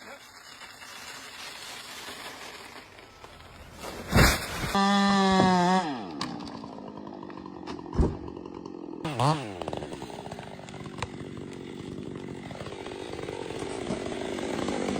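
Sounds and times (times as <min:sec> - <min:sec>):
sharp crack: 0:01.4 - 0:04.8
chainsaw running and idling: 0:04.6 - 0:14.9.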